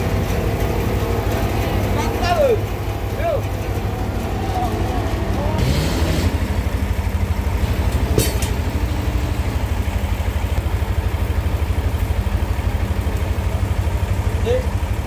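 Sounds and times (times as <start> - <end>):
sawmill engine running: 0.0 - 15.0
brief clatter: 8.1 - 8.6.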